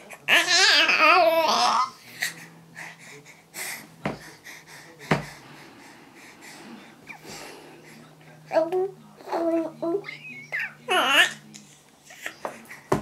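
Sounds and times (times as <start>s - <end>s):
baby babbling: 0.3s - 1.9s, 8.5s - 11.4s.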